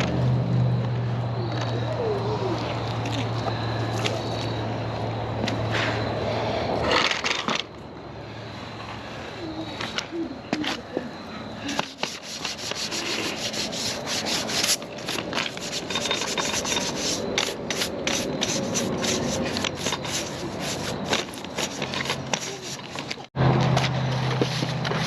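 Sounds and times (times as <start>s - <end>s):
rapid rubbing strokes: 11.8s - 23.1s.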